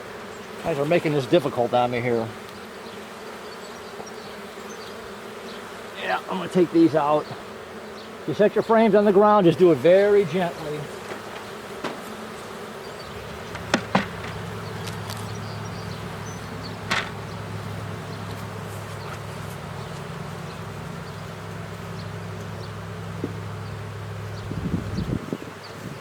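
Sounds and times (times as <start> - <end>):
honeybees buzzing: 0.0 - 26.0
sharp knocks: 11.0 - 12.1, 13.1 - 21.6, 23.2 - 23.4.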